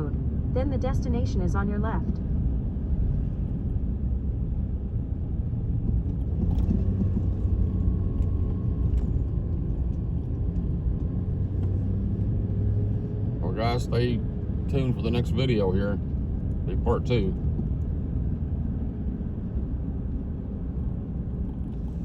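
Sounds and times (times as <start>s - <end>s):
truck engine and tyres rumbling: 0.0s - 22.0s.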